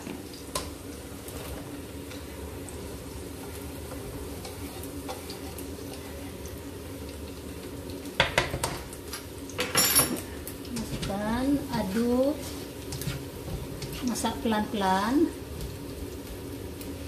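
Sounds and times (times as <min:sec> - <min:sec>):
vegetables frying in oil: 0:00.0 - 0:17.0
spatula scraping pan: 0:04.3 - 0:05.6, 0:11.8 - 0:14.4.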